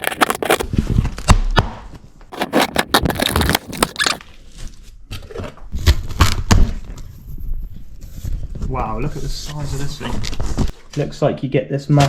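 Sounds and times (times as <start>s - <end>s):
scraping and clicking handling noises: 2.3s - 4.3s.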